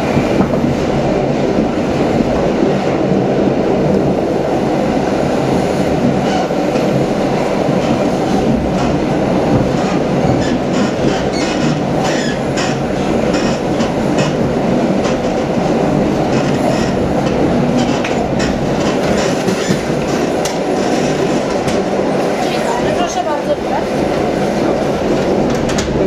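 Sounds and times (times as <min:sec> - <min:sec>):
train wheels rumbling on rails: 0:00.0 - 0:26.0
wheels clicking over track: 0:06.0 - 0:26.0.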